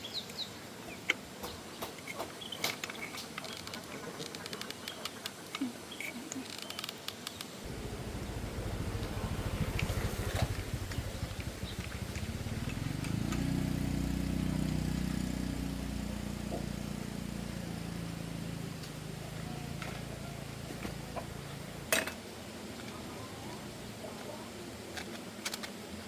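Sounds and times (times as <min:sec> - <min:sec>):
passing vehicle engine hum: 0:07.6 - 0:21.9.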